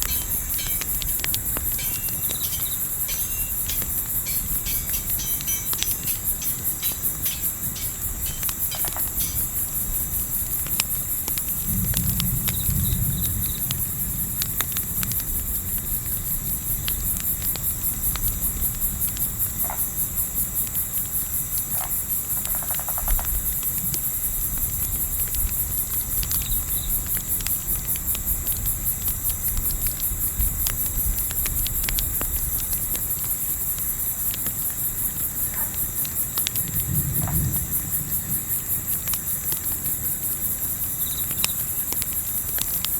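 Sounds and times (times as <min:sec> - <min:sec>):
low wind rumble: 0:00.0 - 0:19.6
campfire crackles: 0:00.0 - 0:42.9
crickets chirping: 0:00.0 - 0:42.9.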